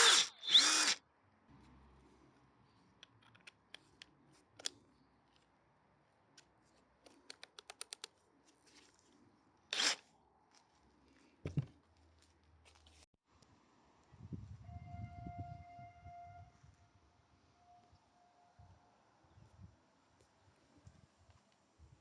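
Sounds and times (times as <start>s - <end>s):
impact wrench burst: 0.0s - 1.0s
handling clicks and taps: 6.4s - 8.2s.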